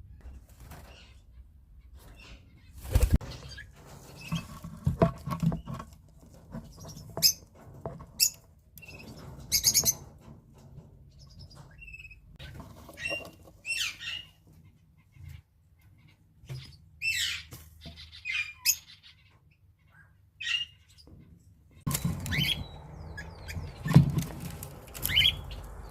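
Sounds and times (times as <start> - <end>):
knocks and rustles: 2.8 - 13.7, 21.1 - 25.9.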